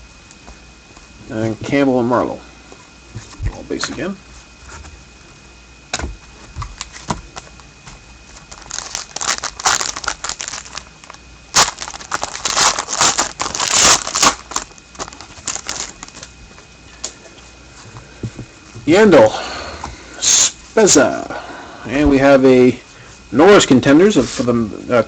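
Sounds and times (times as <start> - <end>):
foil wrapper tearing and crinkling: 8.4 - 16.3.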